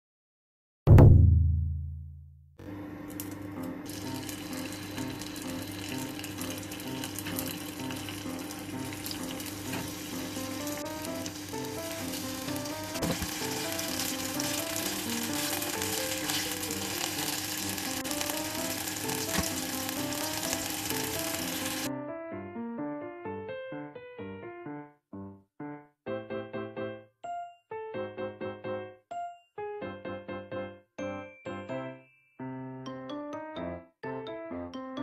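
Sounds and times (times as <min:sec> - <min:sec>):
meat sizzling in oil: 0:03.8 - 0:21.9.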